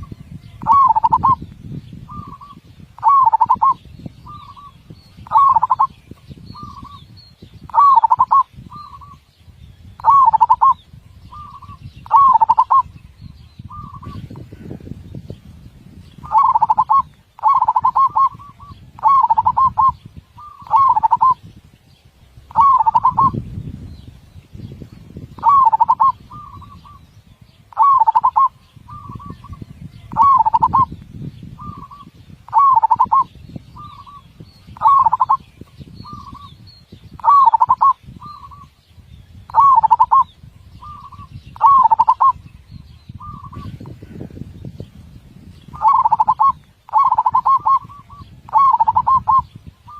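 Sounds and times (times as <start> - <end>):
dove cooing: 0.5 - 1.4, 2.1 - 6.0, 7.7 - 9.2, 10.0 - 12.9, 16.2 - 21.4, 22.5 - 23.4, 25.4 - 27.0, 27.7 - 30.9, 31.6 - 34.2, 34.8 - 35.4, 37.2 - 38.7, 39.5 - 42.4, 45.8 - 49.9.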